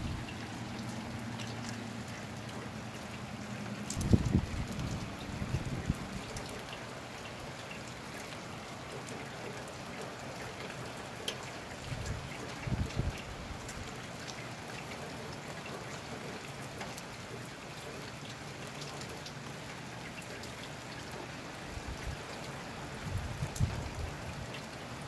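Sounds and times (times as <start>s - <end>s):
wind buffeting microphone: 0.0s - 0.3s, 3.9s - 6.5s, 11.8s - 13.9s, 23.0s - 24.4s
steady rain falling: 0.0s - 25.0s.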